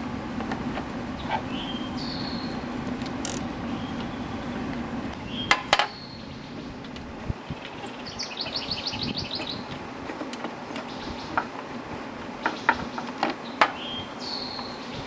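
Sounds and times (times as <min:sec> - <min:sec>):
songbird trilling: 0:01.2 - 0:02.6, 0:03.7 - 0:04.6, 0:05.2 - 0:06.8, 0:07.4 - 0:09.7, 0:10.8 - 0:11.5, 0:12.4 - 0:15.0.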